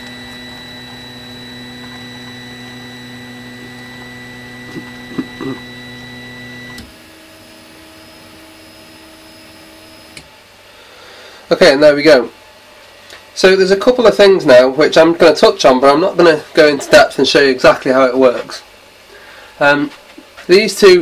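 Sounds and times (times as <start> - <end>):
stepper motors whining: 0.0 - 7.1.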